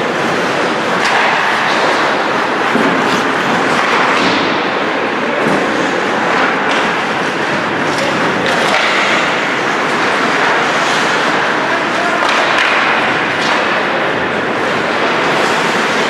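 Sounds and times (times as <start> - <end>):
hockey sticks clacking: 0.0 - 16.0
skates scraping on ice: 0.0 - 16.0.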